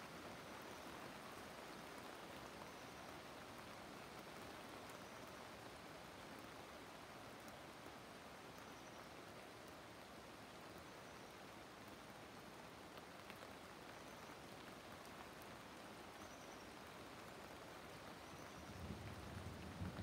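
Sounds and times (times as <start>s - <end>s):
soft steady rain: 0.0s - 20.0s.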